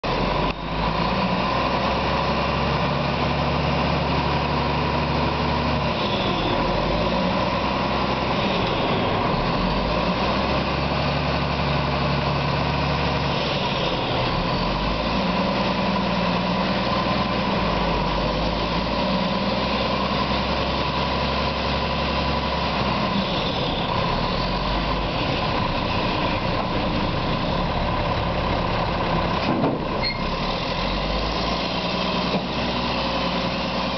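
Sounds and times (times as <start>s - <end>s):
garbage truck diesel engine idling: 0.1s - 33.9s.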